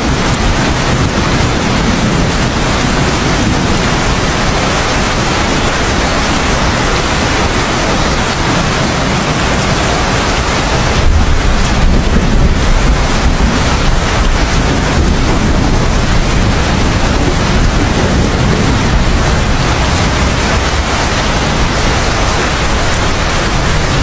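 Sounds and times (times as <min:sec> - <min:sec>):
heavy rain falling: 0:00.0 - 0:24.0
low rumble of thunder: 0:00.0 - 0:24.0.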